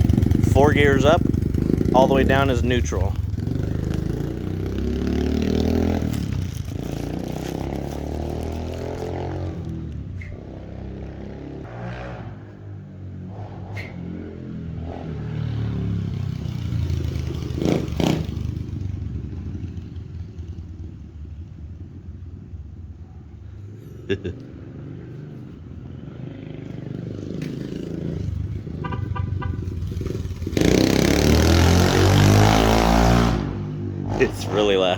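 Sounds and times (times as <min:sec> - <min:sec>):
dirt bike engine revving: 0:00.0 - 0:19.0, 0:25.8 - 0:34.9.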